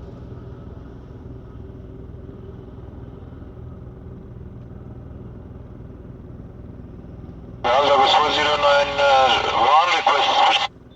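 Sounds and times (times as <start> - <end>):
jet engines rumbling: 7.6 - 10.7.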